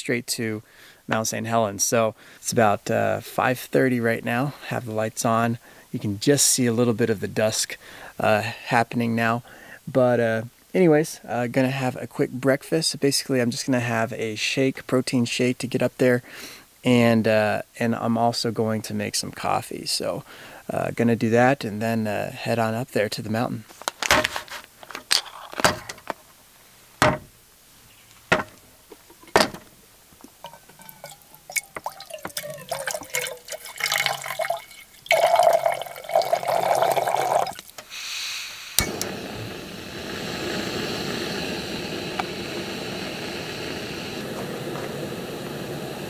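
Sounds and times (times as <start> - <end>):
cooking gear knocking and clicking: 28.3 - 29.8
water poured into a pot: 30.3 - 37.8
gas stove burner hissing: 37.0 - 46.0
stove ignition click: 38.7 - 46.0.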